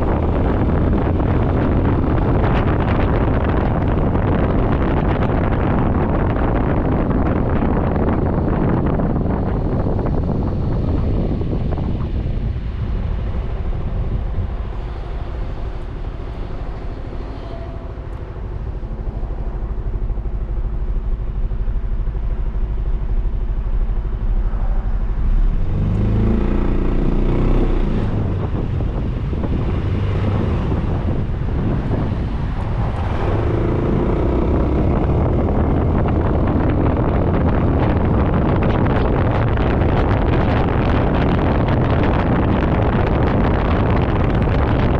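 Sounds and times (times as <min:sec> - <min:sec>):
wind buffeting microphone: 0:00.0 - 0:44.9
scooter engine idling and revving: 0:20.0 - 0:44.9.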